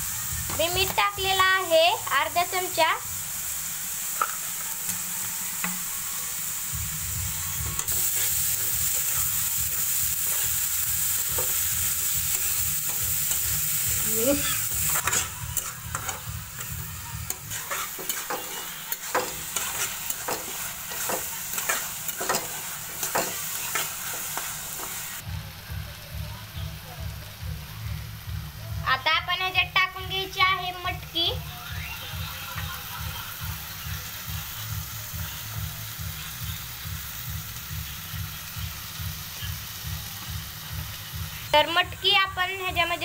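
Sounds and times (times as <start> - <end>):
food sizzling in oil: 0.0 - 43.0
metal spatula scraping pan: 12.3 - 25.0.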